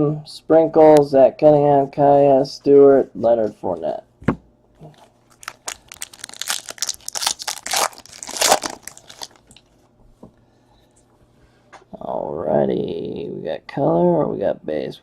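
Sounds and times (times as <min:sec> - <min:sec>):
card packaging crinkling: 0:04.8 - 0:09.7.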